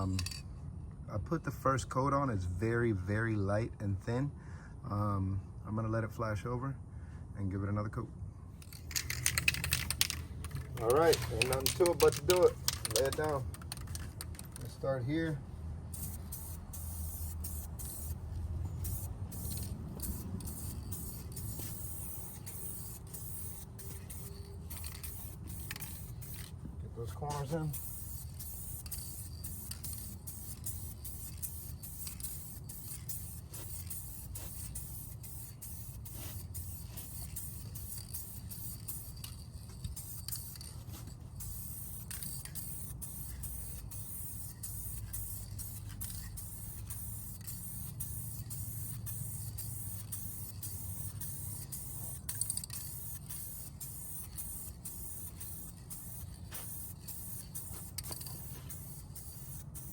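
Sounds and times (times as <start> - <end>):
aerosol spray can hissing: 8.6 - 14.4, 16.0 - 59.9.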